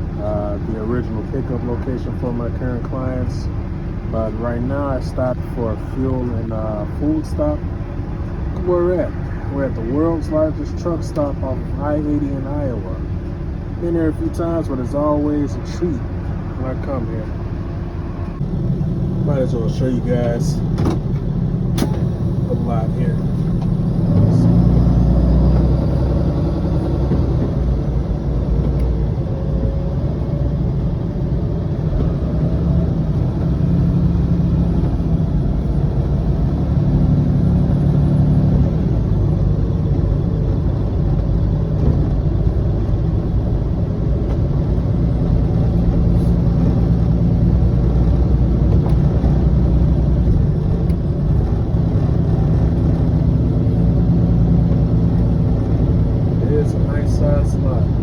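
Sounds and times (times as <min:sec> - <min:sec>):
bus diesel engine rumbling: 0:00.0 - 0:58.0.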